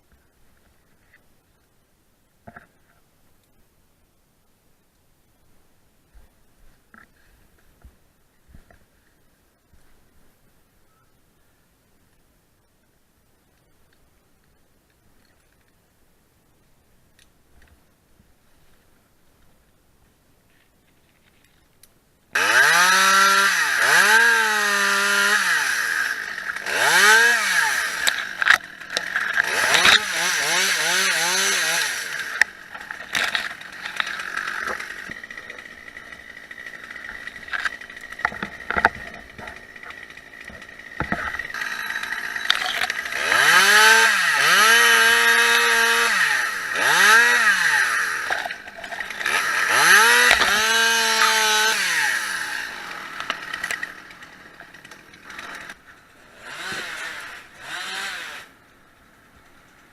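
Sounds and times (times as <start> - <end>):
chainsaw revving: 22.4 - 58.6.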